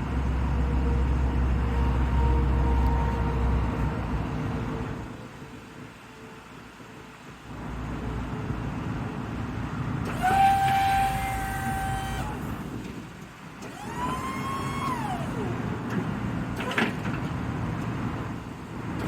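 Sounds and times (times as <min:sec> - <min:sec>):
truck engine idling: 0:00.0 - 0:19.0
electric hydraulic pump whining: 0:10.0 - 0:17.2.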